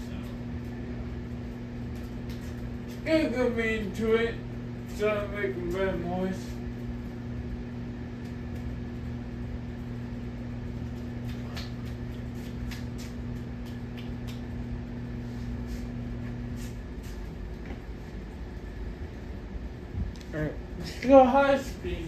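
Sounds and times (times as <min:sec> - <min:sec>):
ceiling fan motor hum: 0:00.0 - 0:22.0.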